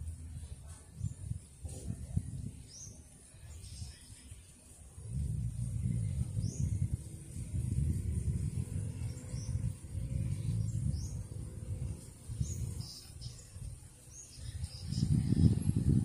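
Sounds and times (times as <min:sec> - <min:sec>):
birds chirping: 0:00.0 - 0:16.0
low rumble: 0:04.9 - 0:16.0.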